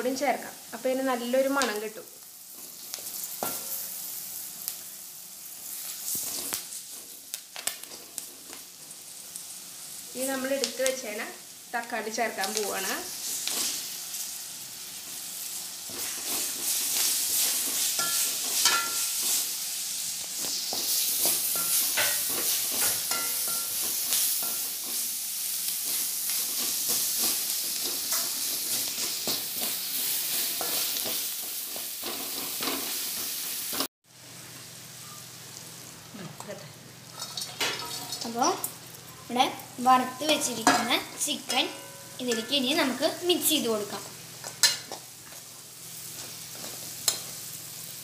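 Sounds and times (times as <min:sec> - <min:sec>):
food sizzling in hot oil: 0:00.0 - 0:48.0
metal spoon scraping a wok: 0:46.1 - 0:47.5.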